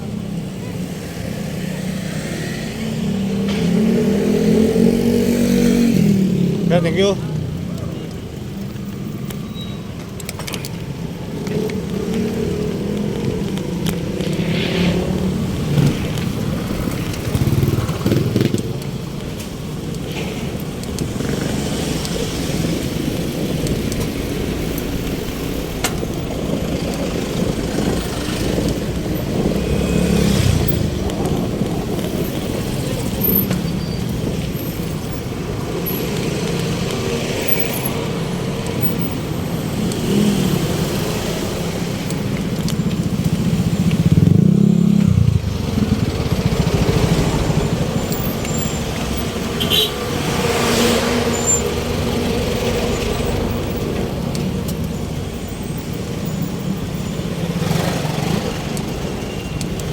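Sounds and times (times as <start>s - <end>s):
vehicle engines running: 0.0s - 59.9s
vehicle passing close: 20.3s - 54.5s.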